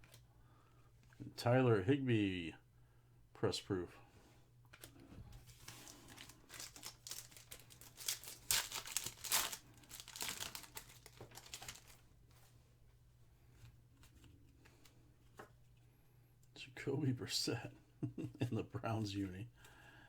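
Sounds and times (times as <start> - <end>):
foil wrapper tearing and crinkling: 5.5 - 12.0.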